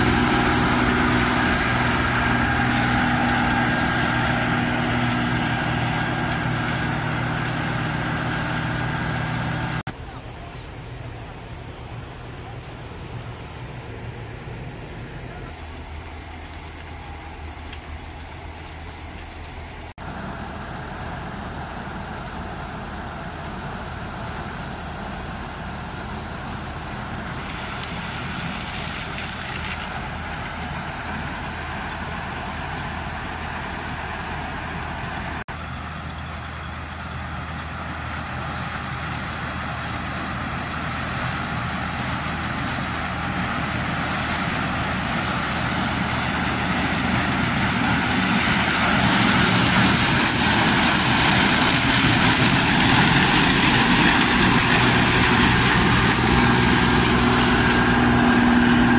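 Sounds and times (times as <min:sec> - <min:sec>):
combine harvester drone: 0:00.0 - 0:58.9.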